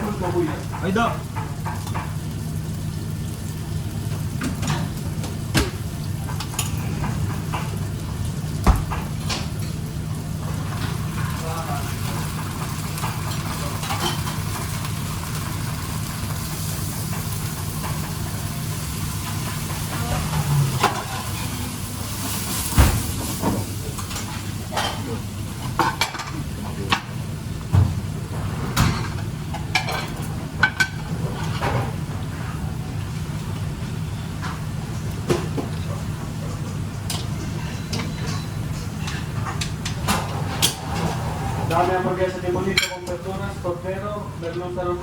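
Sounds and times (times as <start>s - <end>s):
pans and utensils clinking: 10.5s - 27.1s, 37.0s - 43.4s.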